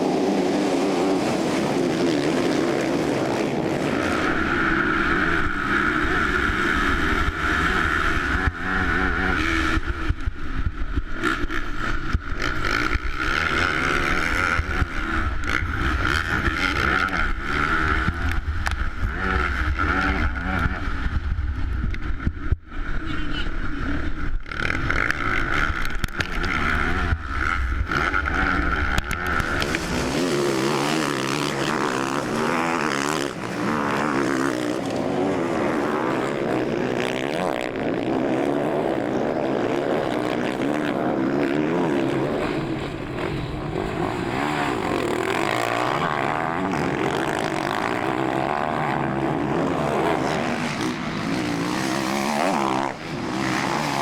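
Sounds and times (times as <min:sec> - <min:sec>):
motocross bike engines revving: 0:00.0 - 0:54.0.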